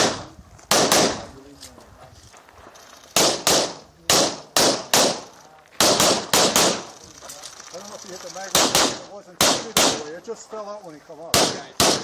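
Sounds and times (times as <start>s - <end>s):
pistol shots: 0.0s - 1.3s, 3.2s - 7.0s, 8.5s - 10.1s, 11.3s - 12.0s.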